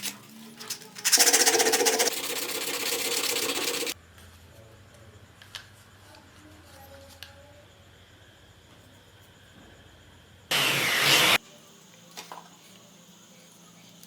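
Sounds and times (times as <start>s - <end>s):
small electric motor buzzing: 1.0s - 4.0s.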